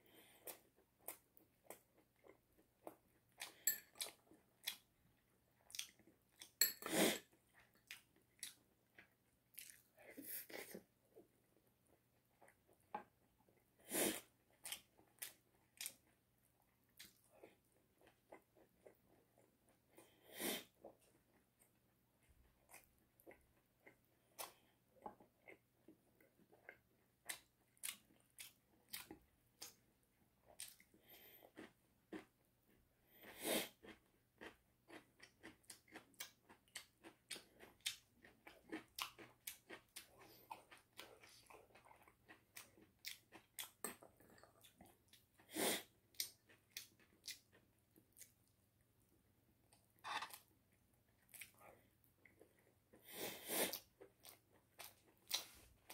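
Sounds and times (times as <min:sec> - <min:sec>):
person chewing crunchy chicken: 0:00.1 - 0:11.2, 0:22.6 - 0:48.5, 0:50.0 - 0:55.9.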